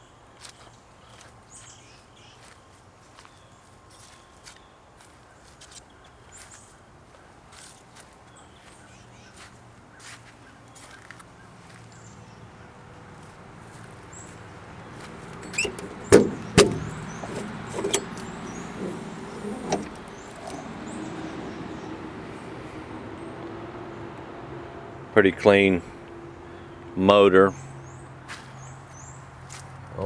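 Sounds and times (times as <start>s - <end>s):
metal clunks and knocks: 15.4s - 22.1s.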